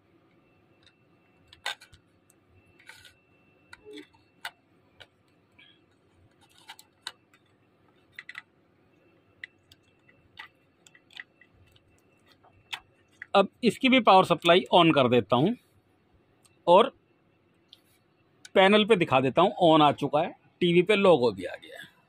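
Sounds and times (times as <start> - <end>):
connectors clicking and tapping: 0.2 - 8.6, 9.3 - 13.4.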